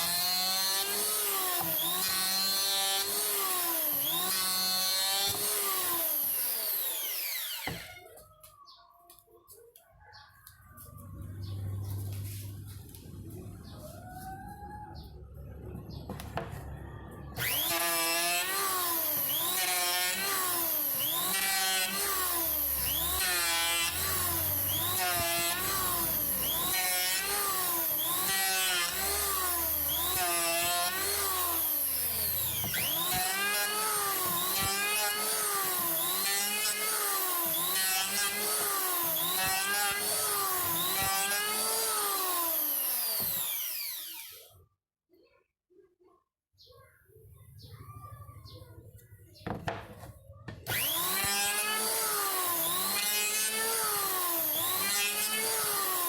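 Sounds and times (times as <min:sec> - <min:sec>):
electric hand planer planing wood: 0:00.0 - 0:07.9, 0:17.4 - 0:44.4, 0:50.6 - 0:56.0.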